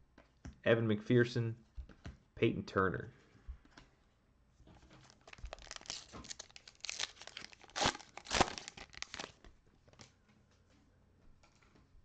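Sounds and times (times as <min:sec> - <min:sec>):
plastic wrapper tearing and crinkling: 0:05.0 - 0:09.5.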